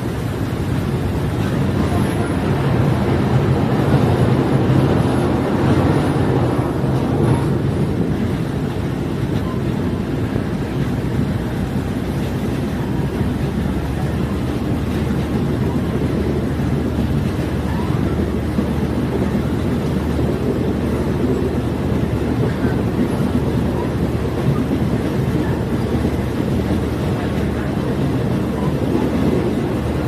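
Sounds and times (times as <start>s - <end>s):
train engine drone: 0.0s - 30.0s
wheel and rail noise: 0.0s - 30.0s.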